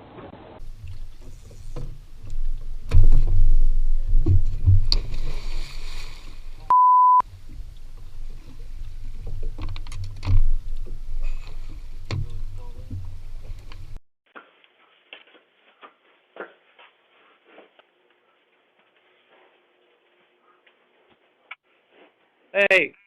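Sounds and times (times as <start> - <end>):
low rumbling: 0.6 - 14.0
dull thumps: 0.8 - 5.7
censor bleep: 6.7 - 7.2.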